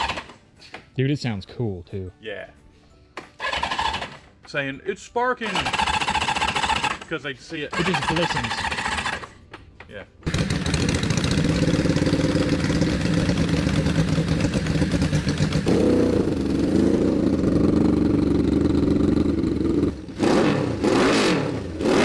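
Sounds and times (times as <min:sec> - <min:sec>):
small engine revving: 0:00.0 - 0:00.3, 0:03.4 - 0:04.3, 0:05.5 - 0:07.1, 0:07.7 - 0:09.3, 0:10.3 - 0:22.0.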